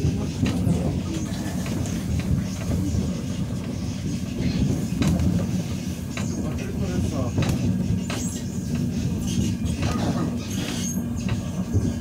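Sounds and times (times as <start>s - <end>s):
train rumble from inside car: 0.0s - 12.0s.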